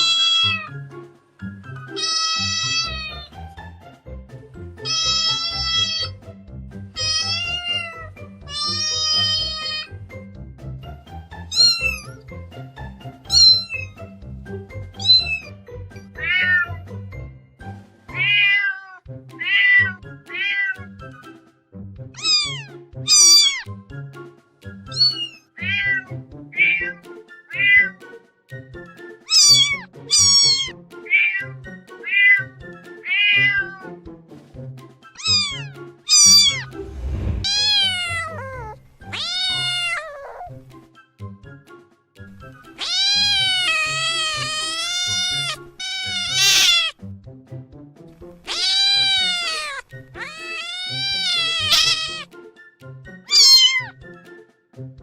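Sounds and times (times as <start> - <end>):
cat meowing: 0.0 - 0.8, 1.9 - 3.4, 4.8 - 6.2, 7.0 - 9.9, 11.5 - 12.2, 13.3 - 13.9, 15.0 - 15.5, 16.2 - 16.8, 18.1 - 20.9, 22.2 - 23.7, 24.9 - 28.0, 29.3 - 33.9, 35.2 - 36.8, 37.4 - 40.6, 42.8 - 47.0, 48.4 - 52.3, 53.2 - 54.0
background music with low beat: 2.9 - 9.2, 20.9 - 25.2, 47.0 - 48.8, 54.0 - 55.0.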